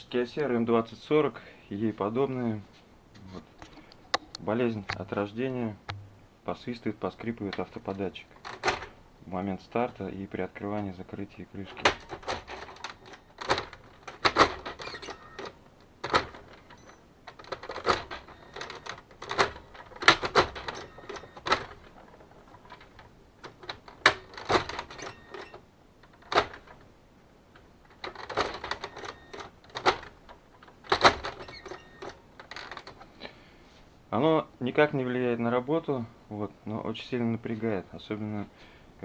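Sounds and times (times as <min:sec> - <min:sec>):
faint plastic squeak: 0:31.4 - 0:32.0.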